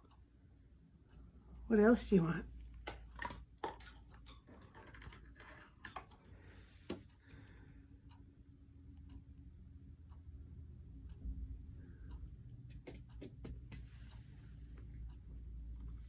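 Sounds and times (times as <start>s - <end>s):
parrot beak clicking and tapping: 12.6s - 13.9s.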